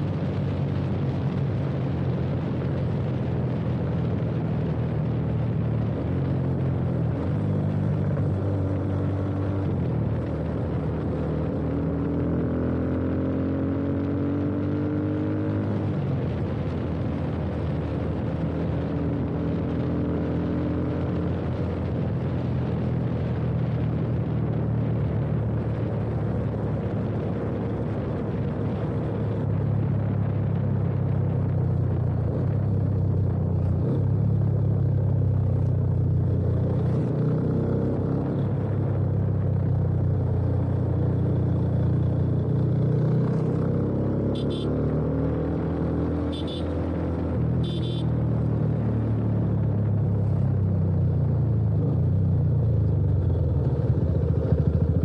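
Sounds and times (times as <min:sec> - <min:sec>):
motorcycle engine running: 0:23.8 - 0:55.0.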